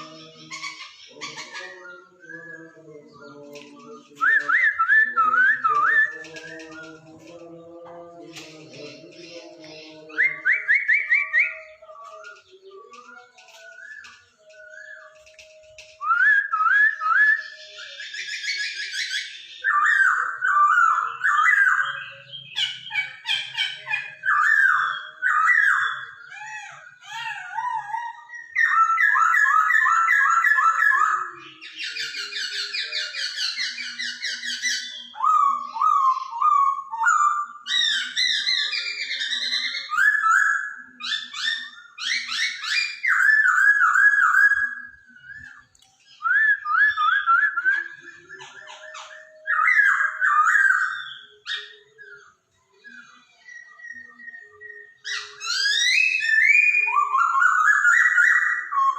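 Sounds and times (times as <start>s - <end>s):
bird singing whistled phrases: 0.0s - 7.6s, 8.3s - 58.9s
harsh buzzy bird chatter: 3.3s - 16.2s.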